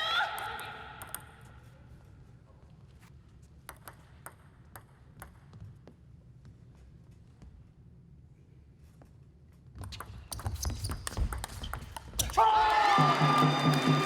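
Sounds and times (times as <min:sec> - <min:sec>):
faint low hall hum: 0:00.0 - 0:14.0
table tennis ball clicking: 0:03.7 - 0:05.4.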